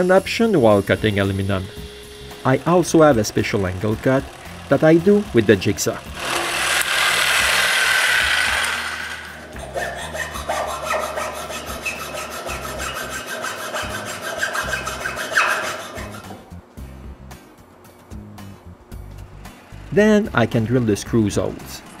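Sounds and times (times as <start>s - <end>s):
jigsaw cutting aluminum: 0.0s - 16.4s.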